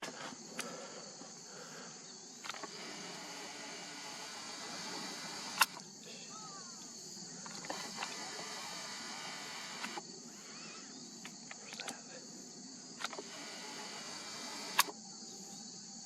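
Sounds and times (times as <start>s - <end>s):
high-pitched insect chirring: 2.1s - 16.0s
sharp clicks: 2.4s - 5.9s, 6.8s - 10.6s, 11.2s - 12.0s, 13.0s - 15.0s.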